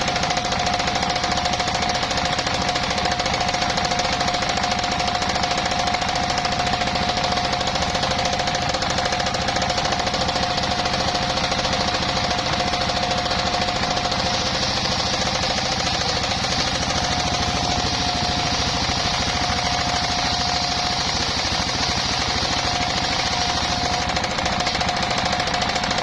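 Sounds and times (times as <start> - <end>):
sawmill engine running: 0.0 - 26.0
circular saw high tone: 14.2 - 24.4.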